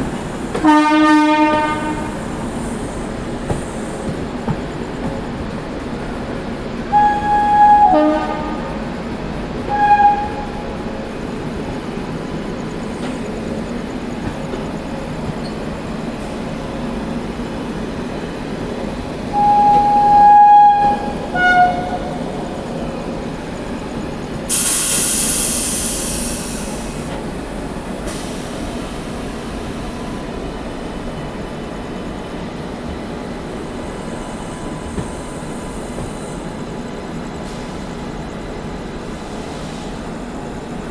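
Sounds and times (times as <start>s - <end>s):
passenger train rumbling: 0.0s - 40.9s
train horn blasts: 0.6s - 2.2s, 6.9s - 8.8s, 9.6s - 10.7s, 19.3s - 22.5s
loud hiss: 1.4s - 4.1s, 24.5s - 30.2s.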